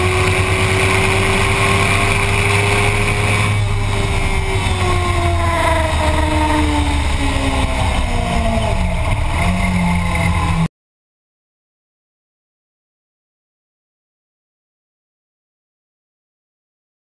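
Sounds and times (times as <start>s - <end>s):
motorcycle engine: 0.0s - 10.7s.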